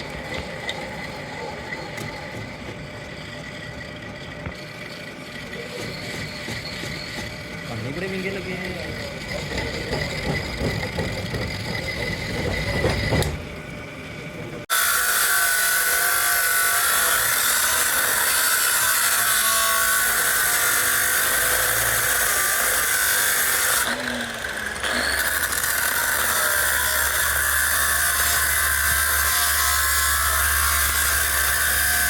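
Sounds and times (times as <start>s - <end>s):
power tool whining: 0.0s - 32.0s
knocks: 9.4s - 13.5s.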